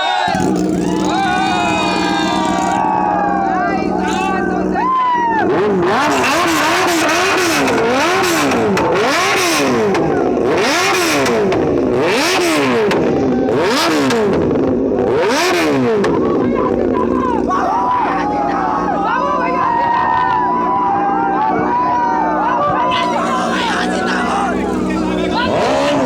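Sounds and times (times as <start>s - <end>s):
motorcycle engine revving: 0.2s - 17.7s, 22.9s - 26.0s.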